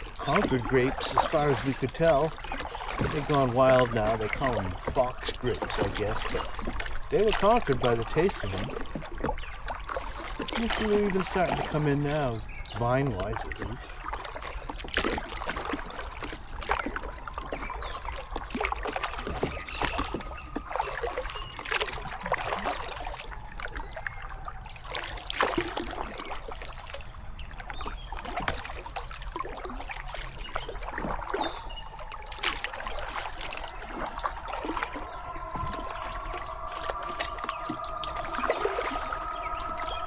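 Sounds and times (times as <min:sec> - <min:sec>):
paddle strokes in water: 0:00.0 - 0:40.0
water dripping off paddle: 0:00.0 - 0:40.0
steady pitched drone: 0:33.7 - 0:40.0.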